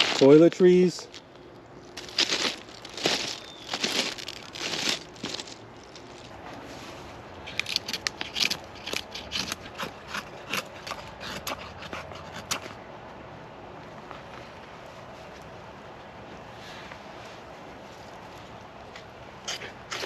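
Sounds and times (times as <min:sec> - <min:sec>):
rustling and crinkling items: 0:00.0 - 0:09.2
short crisp crunches: 0:00.0 - 0:11.0.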